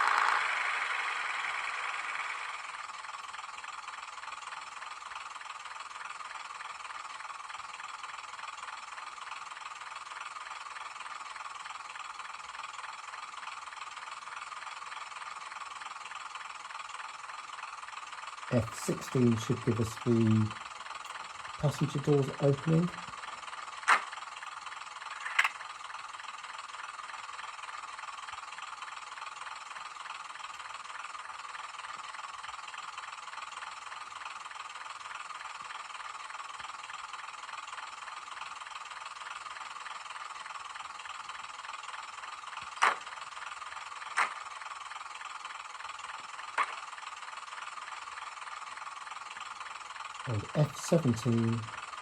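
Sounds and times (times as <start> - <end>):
thin model train running sound: 0.0 - 52.0
sharp slam-like clicks: 42.8 - 43.0.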